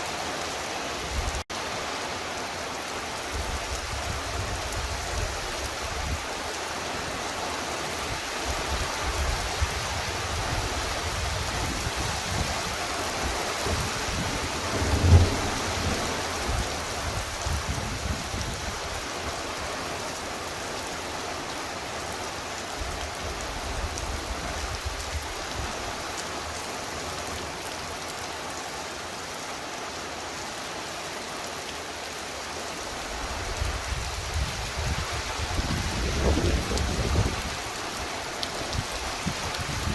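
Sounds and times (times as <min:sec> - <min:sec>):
heavy rain falling: 0:00.0 - 0:39.9
thunder rumbling: 0:13.7 - 0:16.8.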